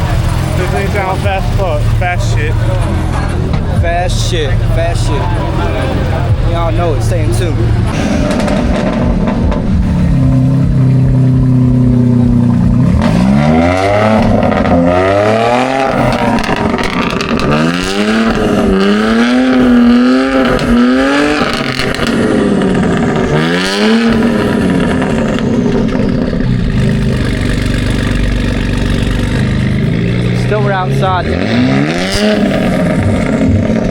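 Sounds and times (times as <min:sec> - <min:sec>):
car engine revving: 0:00.0 - 0:33.9.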